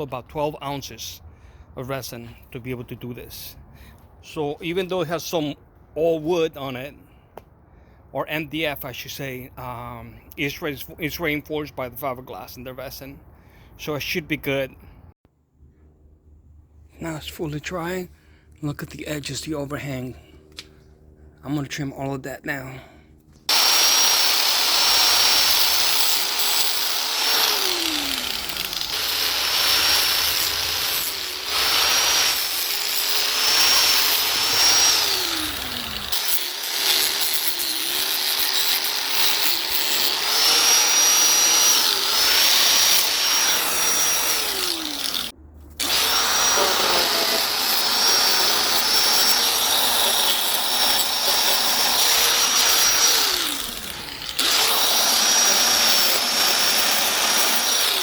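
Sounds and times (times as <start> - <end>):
power tool whining while cutting: 23.5 - 58.0.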